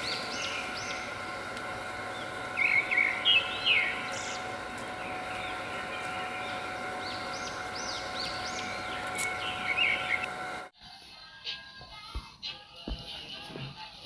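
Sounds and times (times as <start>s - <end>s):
small birds chirping: 0.0s - 1.4s, 2.0s - 10.6s
steady outdoor hum: 0.0s - 14.0s.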